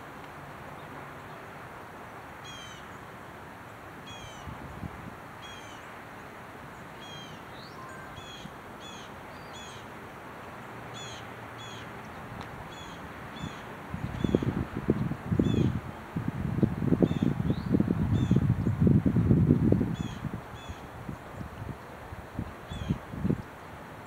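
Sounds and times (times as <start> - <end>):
low background hiss: 0.0 - 24.0
bird calling: 2.4 - 3.0, 4.1 - 4.5, 5.4 - 5.9, 7.0 - 9.9, 11.0 - 14.5.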